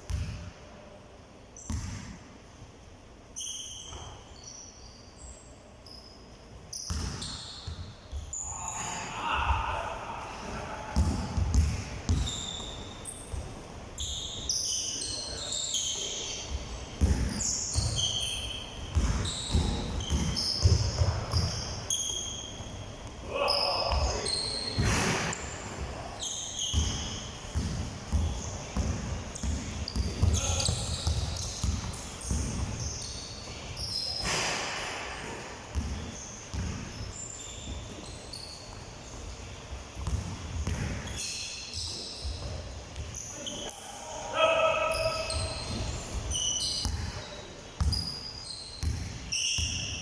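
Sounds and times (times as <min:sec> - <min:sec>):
basketballs bouncing on hard floor: 0:00.1 - 0:00.5, 0:01.7 - 0:02.2, 0:06.9 - 0:08.3, 0:11.0 - 0:13.5, 0:16.6 - 0:18.1, 0:18.9 - 0:21.6, 0:26.6 - 0:32.9, 0:35.2 - 0:37.0, 0:40.0 - 0:41.2, 0:45.3 - 0:47.2, 0:47.8 - 0:48.1, 0:48.8 - 0:49.9
shoes squeaking on court: 0:01.6 - 0:02.1, 0:03.4 - 0:09.0, 0:11.0 - 0:43.8, 0:44.8 - 0:50.0.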